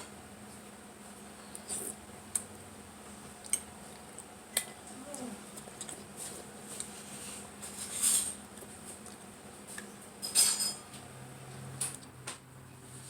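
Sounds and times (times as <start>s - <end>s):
cutlery clinking on a plate: 10.2s - 11.0s.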